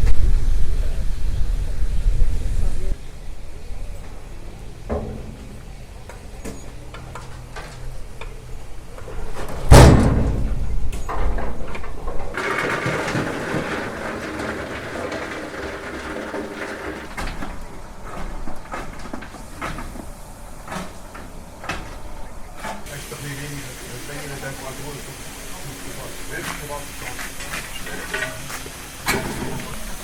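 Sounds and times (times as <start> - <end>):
knocks and clanks of work: 4.9 - 5.6, 9.7 - 17.6
loud bang: 12.4 - 17.1.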